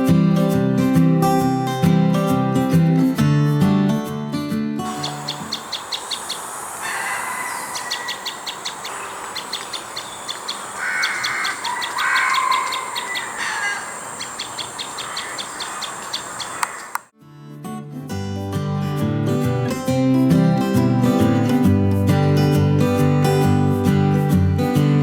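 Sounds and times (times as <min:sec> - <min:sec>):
birds chirping high: 0:04.9 - 0:17.1
lower bird calls: 0:04.9 - 0:17.1
steady background hiss: 0:04.9 - 0:17.1.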